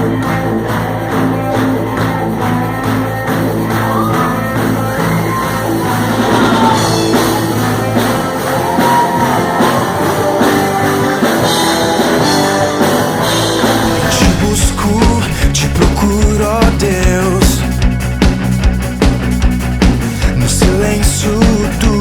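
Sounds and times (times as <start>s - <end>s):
rock band playing: 0.0s - 22.0s
lead singer singing: 13.3s - 17.8s, 20.2s - 22.0s.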